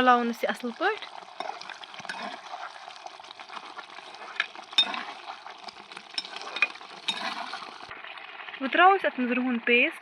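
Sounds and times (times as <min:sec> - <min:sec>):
paste sizzling in hot oil: 0:00.0 - 0:08.7
utensil scraping a pan: 0:01.0 - 0:07.9.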